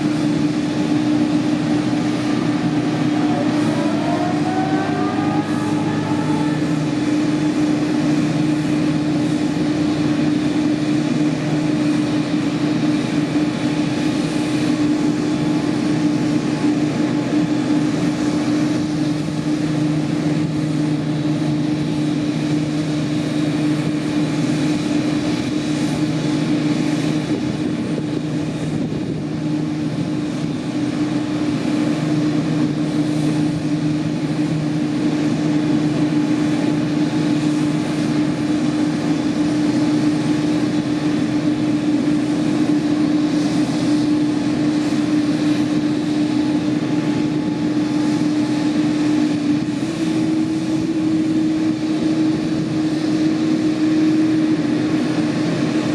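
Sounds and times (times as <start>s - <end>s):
jet engines idling: 0.0s - 55.9s.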